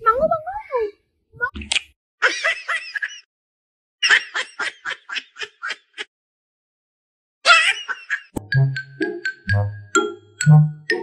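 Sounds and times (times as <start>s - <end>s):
chiming music: 8.4s - 11.0s.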